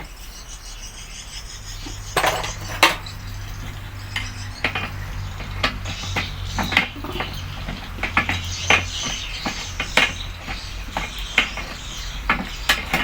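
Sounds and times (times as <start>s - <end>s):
metal parts and tools clinking: 2.2s - 3.2s.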